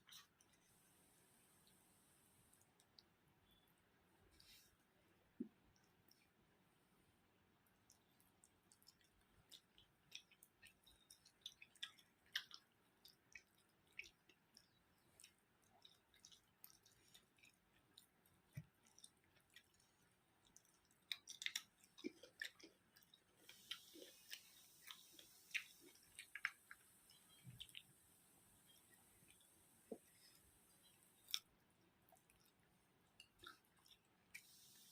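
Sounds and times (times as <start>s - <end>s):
person chewing food: 0.0s - 0.8s, 7.6s - 34.9s.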